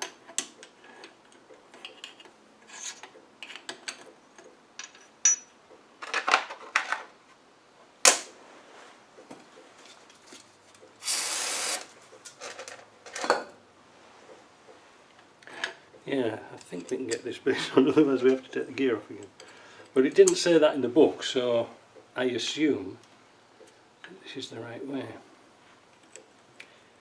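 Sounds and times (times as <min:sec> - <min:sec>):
short hissing rasp: 0:11.0 - 0:11.9.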